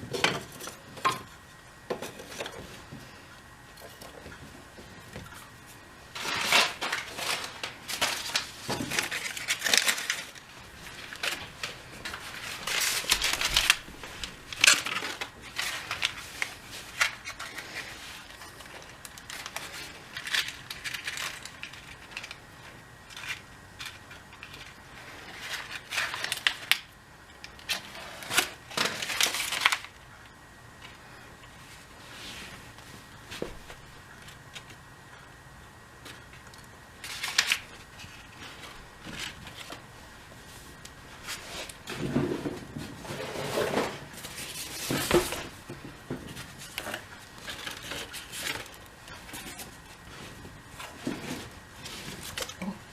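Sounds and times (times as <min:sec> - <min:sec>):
paper and cardboard crumpling: 0:04.9 - 0:30.0, 0:36.0 - 0:52.9.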